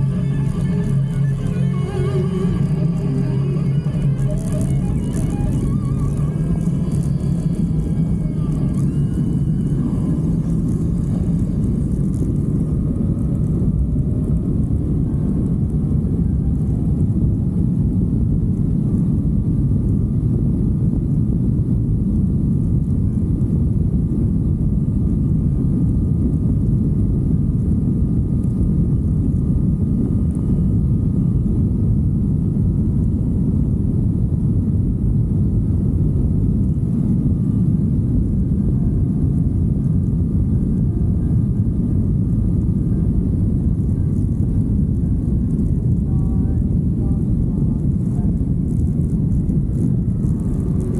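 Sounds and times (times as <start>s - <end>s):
motorcycle engine rumble: 0.0s - 17.5s, 38.3s - 50.9s
wind buffeting: 0.0s - 50.9s.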